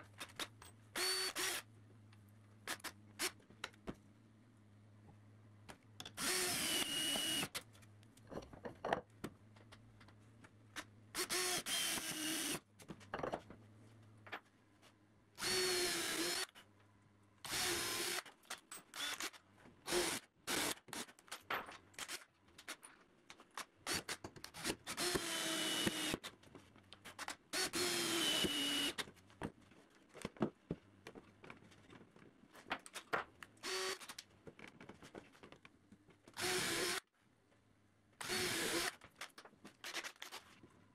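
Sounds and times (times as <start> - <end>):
cordless drill driving screws: 1.0 - 1.6, 6.2 - 7.6, 11.2 - 12.6, 15.4 - 16.5, 17.4 - 21.0, 23.9 - 26.2, 27.6 - 29.0, 33.6 - 34.2, 36.4 - 37.0, 38.2 - 39.0.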